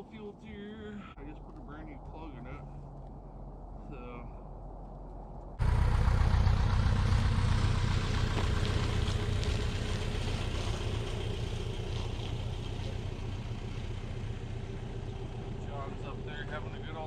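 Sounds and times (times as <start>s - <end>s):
paramotor engine running: 5.6s - 17.0s.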